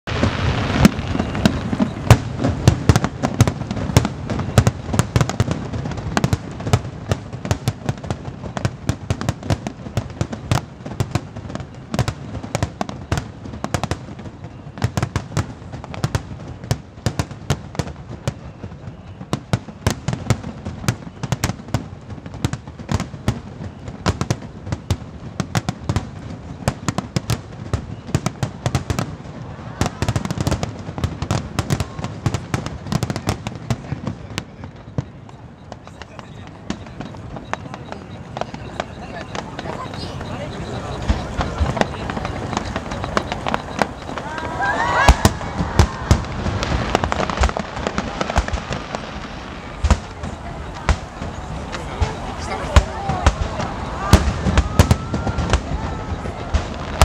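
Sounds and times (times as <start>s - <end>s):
fireworks bursting and crackling: 0.0s - 57.0s
heavy fireworks booming: 0.0s - 57.0s.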